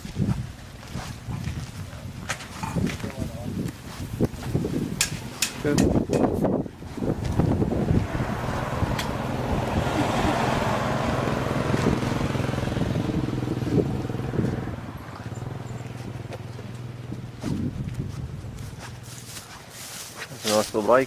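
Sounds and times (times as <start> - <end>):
vehicle engine running: 6.7 - 19.5.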